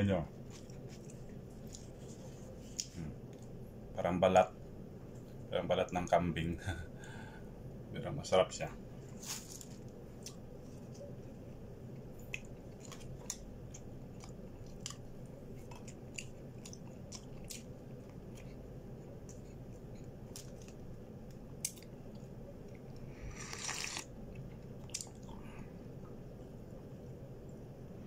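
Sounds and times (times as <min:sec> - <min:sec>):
person chewing: 0:00.4 - 0:03.6, 0:10.2 - 0:25.6
person slurping coffee: 0:23.2 - 0:24.1.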